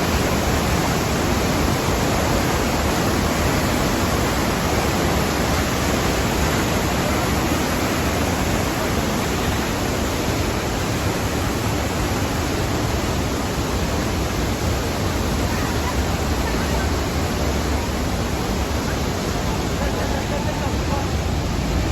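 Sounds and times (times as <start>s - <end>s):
waterfall rushing: 0.0s - 21.9s.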